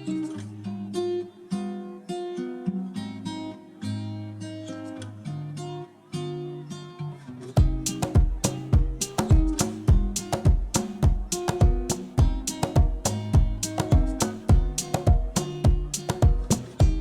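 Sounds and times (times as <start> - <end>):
strummed acoustic guitar: 0.0 - 17.0
heavy low beat: 7.6 - 17.0.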